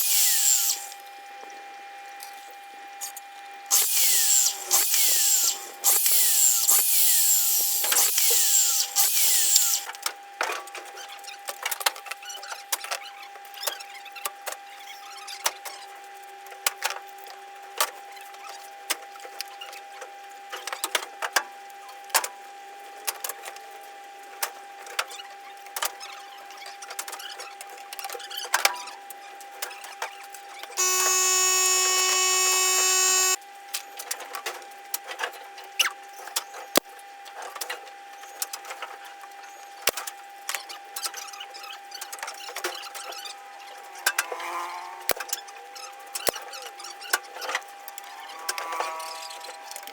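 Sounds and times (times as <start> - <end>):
power drill whirring: 0.0 - 1.0, 3.7 - 9.8, 30.8 - 33.4.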